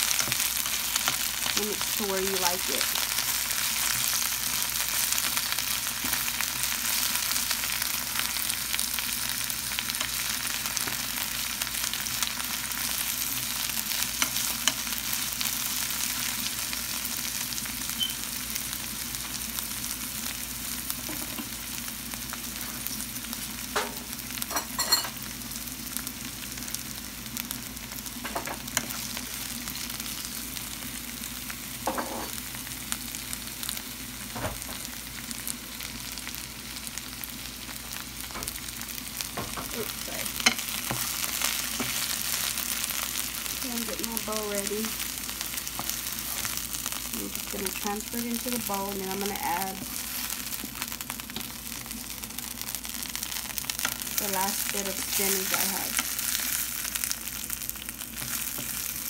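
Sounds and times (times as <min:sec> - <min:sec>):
spinach sizzling in a pan: 0:00.0 - 0:59.0.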